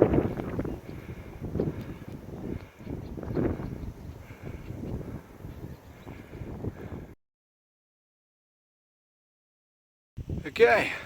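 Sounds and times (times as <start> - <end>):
wind buffeting microphone: 0.0 - 7.2, 10.2 - 10.8.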